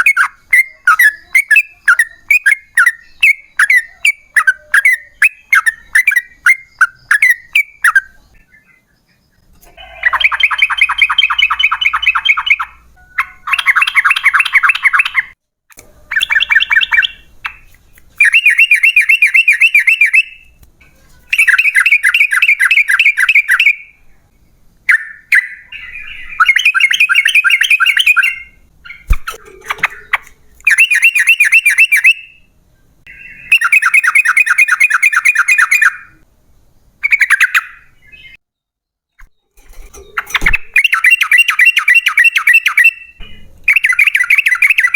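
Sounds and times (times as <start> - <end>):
bulbul singing: 0.0 - 36.3, 37.0 - 38.4, 39.2 - 44.9.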